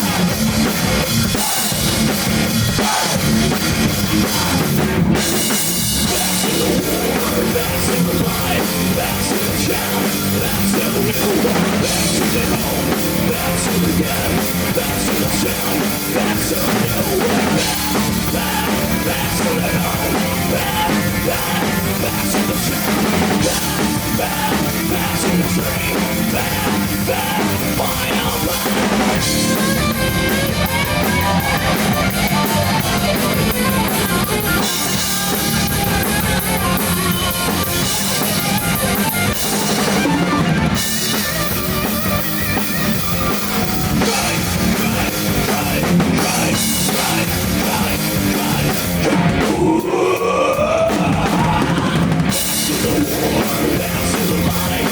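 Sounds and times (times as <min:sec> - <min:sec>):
drum kit beat: 0:00.0 - 0:54.9
electric guitar: 0:00.0 - 0:54.9.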